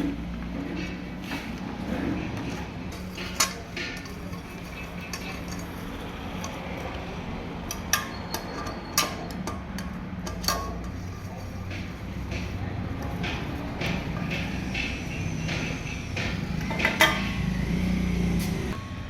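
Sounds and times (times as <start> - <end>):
metal tools clinking: 2.4 - 11.8.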